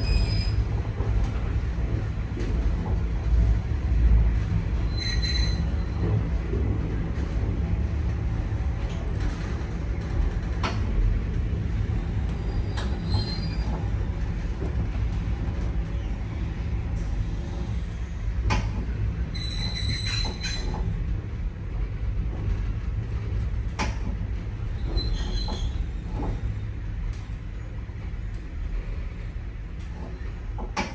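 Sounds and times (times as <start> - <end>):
high-pitched wheel squeals: 0.0 - 0.7, 4.9 - 6.0
train wheels rumbling on rail: 0.0 - 30.9.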